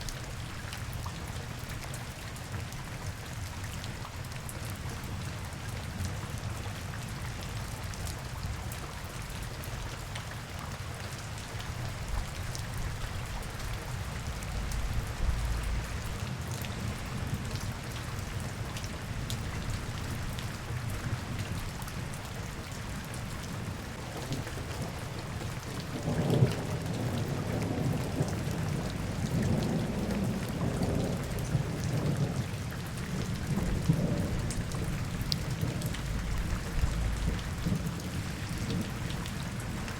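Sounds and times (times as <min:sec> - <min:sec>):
rain on hard surfaces: 0:00.0 - 0:39.9
low rumble: 0:14.3 - 0:16.2, 0:35.9 - 0:37.8.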